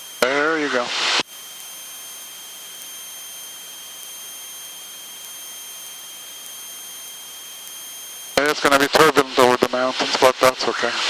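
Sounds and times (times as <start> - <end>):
thin high-pitched whines: 0.0 - 9.5.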